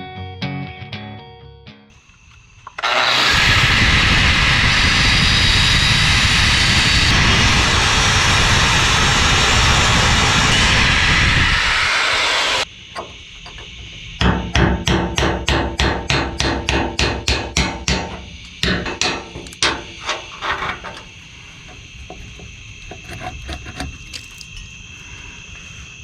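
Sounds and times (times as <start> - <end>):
hammer blows: 2.7 - 23.3
loud rushing noise: 2.8 - 12.7.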